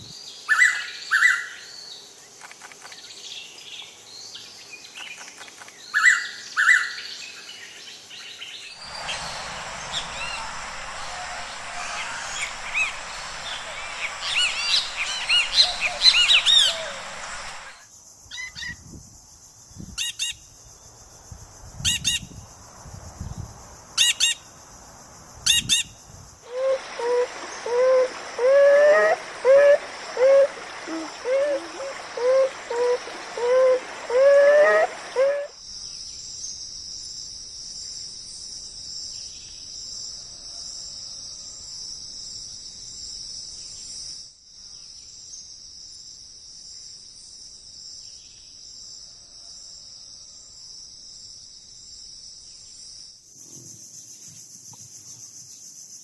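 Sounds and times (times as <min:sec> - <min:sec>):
birds calling and chirping: 0:08.8 - 0:17.7.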